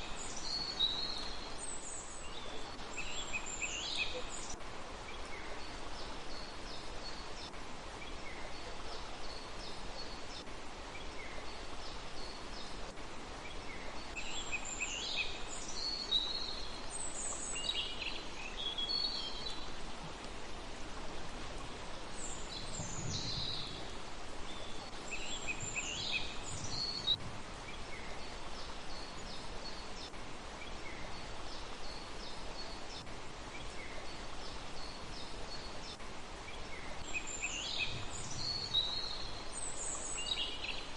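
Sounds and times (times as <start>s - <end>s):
background hiss: 0.0s - 40.9s
small birds chirping: 22.1s - 40.9s.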